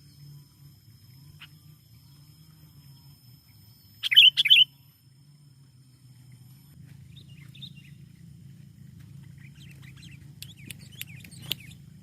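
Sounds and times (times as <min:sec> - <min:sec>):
bird chirping: 0:00.0 - 0:05.1, 0:05.9 - 0:08.3, 0:09.1 - 0:12.0
steady low hum: 0:00.0 - 0:12.0
sharp clicks: 0:10.4 - 0:11.8.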